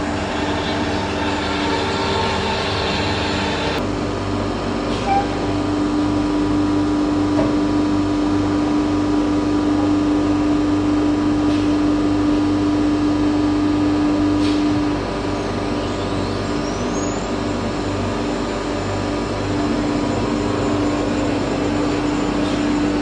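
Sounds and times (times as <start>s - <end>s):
cnc router spindle tone: 0.0s - 3.8s, 17.2s - 23.0s.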